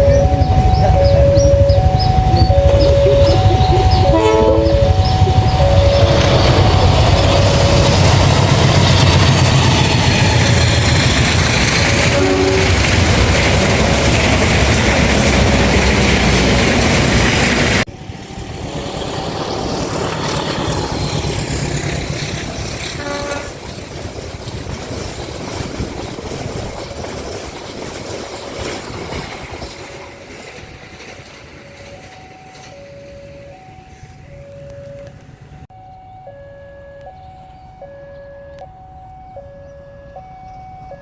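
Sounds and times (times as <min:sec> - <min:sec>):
repeating two-note tone: 0:00.0 - 0:08.2
passenger train passing: 0:00.0 - 0:35.7.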